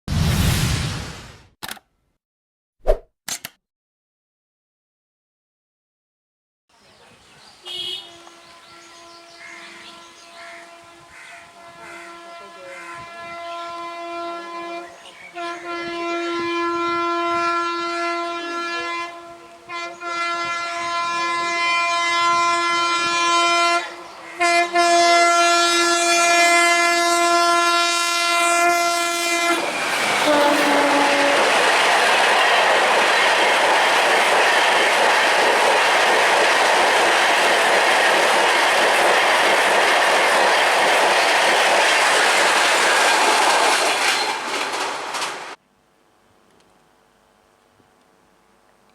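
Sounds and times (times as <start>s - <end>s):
locomotive horn blasts: 7.6s - 31.6s
train wheels on rails: 29.3s - 45.6s
clickety-clack over rail joints: 30.1s - 45.6s.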